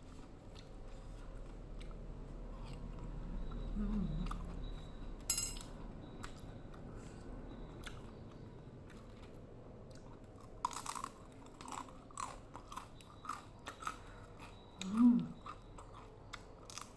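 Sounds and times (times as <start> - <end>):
cutlery clinking against plate: 5.3 - 5.8.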